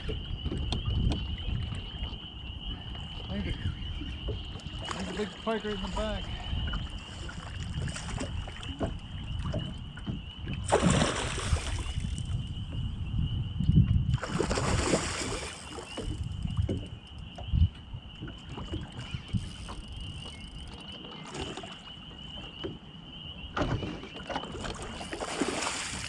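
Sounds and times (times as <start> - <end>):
wind on microphone: 0.0 - 20.8.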